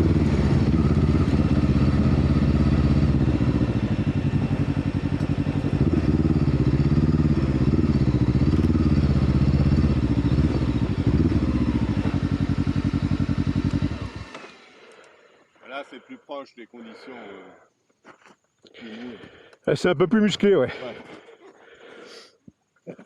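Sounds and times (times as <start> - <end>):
motorcycle engine revving: 0.0 - 14.8.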